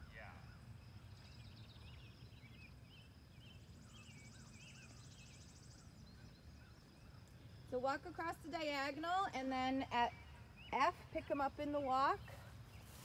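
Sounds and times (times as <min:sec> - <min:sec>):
faint bird chirps: 0:00.0 - 0:07.8.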